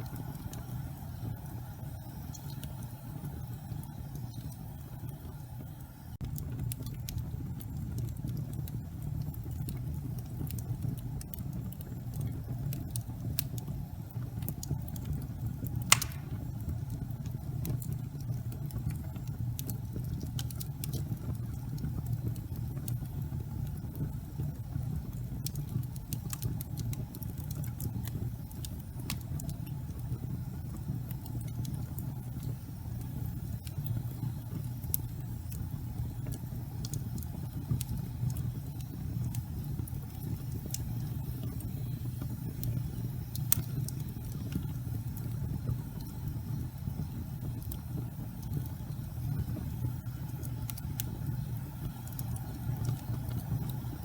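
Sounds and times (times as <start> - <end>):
fireplace fire crackling: 0.0 - 54.0
loud fire pop: 15.9 - 16.6.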